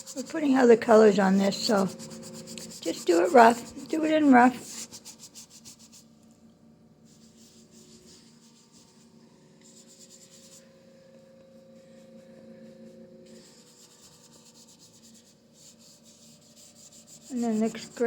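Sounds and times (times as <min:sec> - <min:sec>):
paintbrush scrubbing on canvas: 0:00.0 - 0:06.1, 0:07.1 - 0:09.0, 0:09.6 - 0:10.7, 0:13.3 - 0:18.0
faint steady hum: 0:00.0 - 0:18.0.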